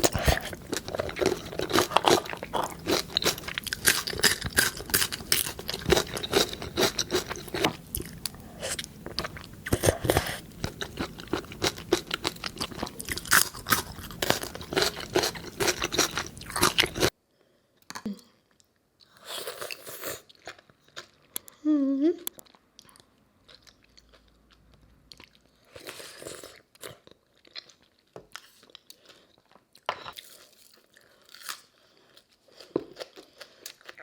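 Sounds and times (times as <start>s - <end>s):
crunchy food chewing: 0.0s - 17.1s.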